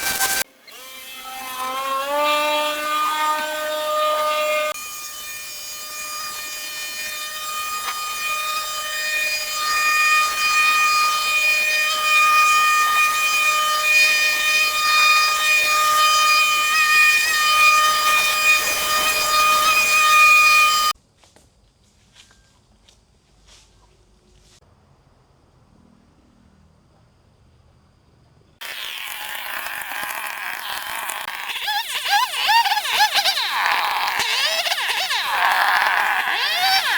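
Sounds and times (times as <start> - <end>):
power tool whining: 0.0 - 21.0, 28.6 - 36.9.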